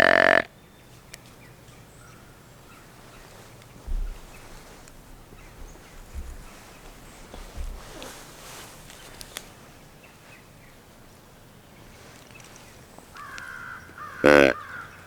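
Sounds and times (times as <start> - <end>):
dull low thumps: 3.1 - 9.2.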